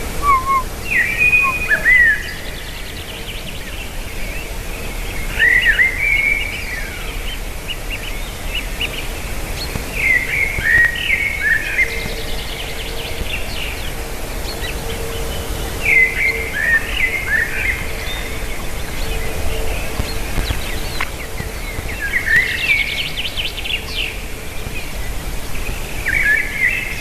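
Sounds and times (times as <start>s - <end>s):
bird chirps and calls: 0.2s - 2.0s.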